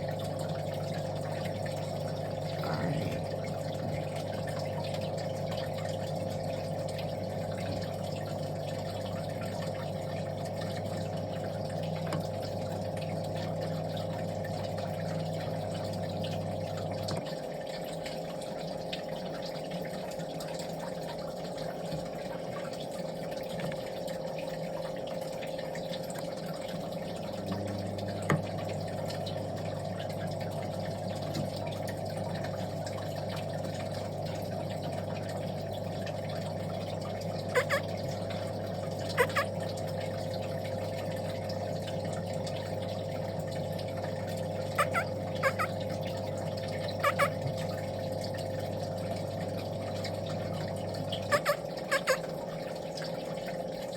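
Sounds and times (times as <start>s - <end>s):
bird calls: 37.6s - 37.9s, 39.2s - 39.5s, 44.7s - 45.8s, 46.9s - 47.4s, 51.3s - 52.2s.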